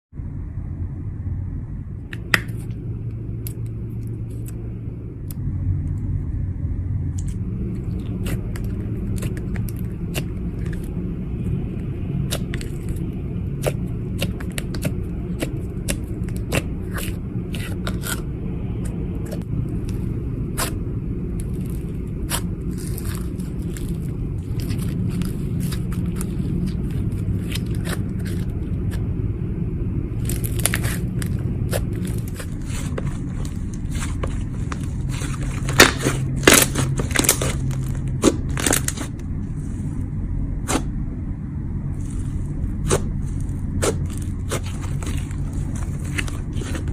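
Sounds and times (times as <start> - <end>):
low rumble: 0.1 - 46.9
slime crackling and popping: 7.2 - 18.2, 18.8 - 29.0, 30.2 - 39.2.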